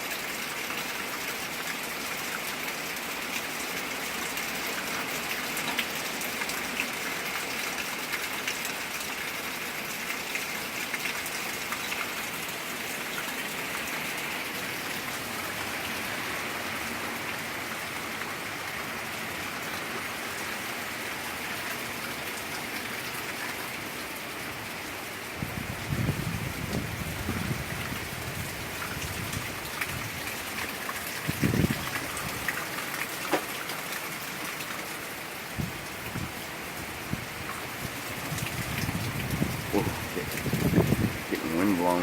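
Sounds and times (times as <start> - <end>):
heavy rain hissing: 35.0 - 42.0.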